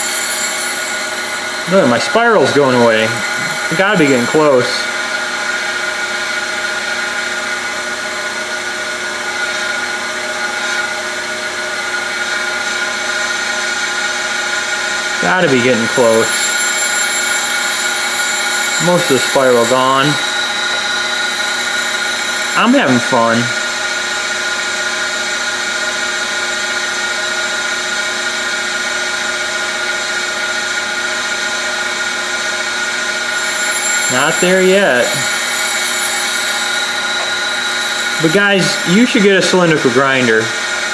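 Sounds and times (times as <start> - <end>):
grinding wheel gritty hiss: 0.0 - 5.0, 15.4 - 23.6, 33.3 - 40.0
grinder motor whine: 0.0 - 5.9, 15.2 - 24.3, 33.2 - 40.0.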